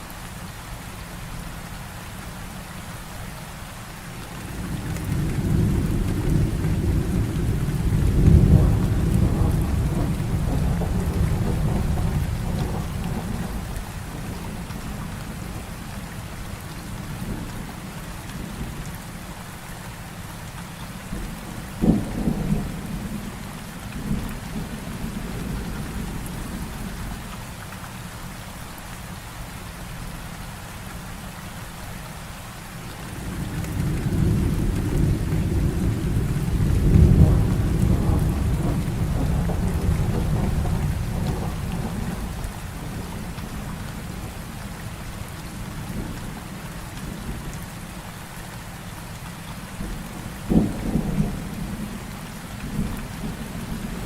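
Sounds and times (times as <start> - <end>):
heavy rain: 0.0 - 54.0
thunder rumbling and cracking: 4.4 - 15.8, 21.1 - 27.2, 33.0 - 47.5, 49.8 - 54.0.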